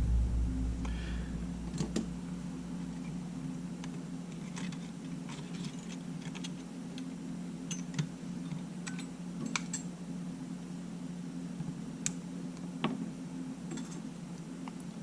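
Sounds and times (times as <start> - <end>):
steady low hum: 0.0 - 15.0
small tools clicking and tapping: 7.7 - 9.9.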